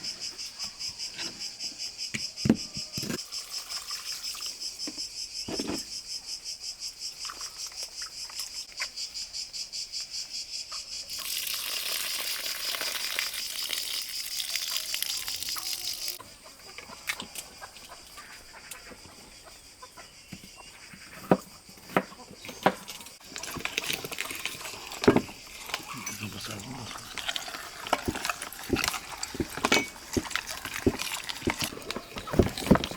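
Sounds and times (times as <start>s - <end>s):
crickets chirping: 0.0s - 32.9s.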